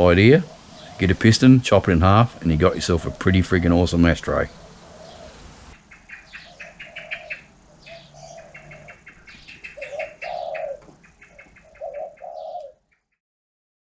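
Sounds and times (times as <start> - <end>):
lower bird call: 0.0 - 1.3, 4.3 - 13.1.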